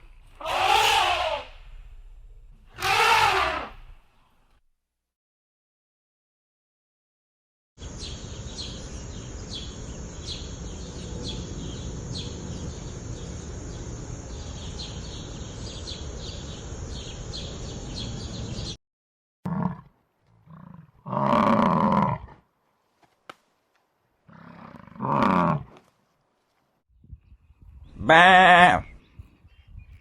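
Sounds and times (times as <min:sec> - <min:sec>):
large animal roaring: 0:00.4 - 0:01.6, 0:02.8 - 0:03.8, 0:19.5 - 0:22.4, 0:24.3 - 0:25.7
low rumble: 0:01.5 - 0:02.8.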